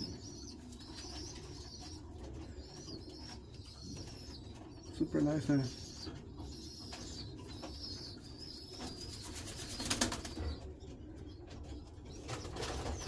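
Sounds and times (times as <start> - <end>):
pigeon wings flapping: 9.4 - 10.4.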